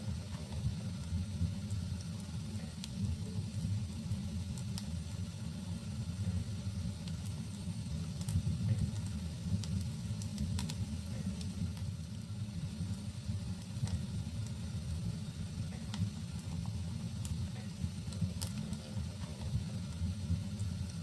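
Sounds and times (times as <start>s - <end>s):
fire crackles and pops: 0.0s - 21.0s
low rumble of flames: 0.0s - 21.0s.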